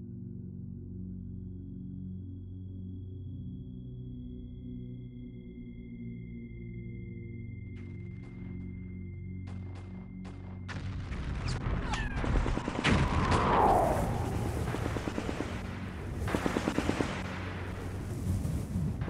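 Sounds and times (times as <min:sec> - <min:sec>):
low rumble: 0:11.0 - 0:19.0
machine-gun burst: 0:11.9 - 0:13.2, 0:14.6 - 0:17.9.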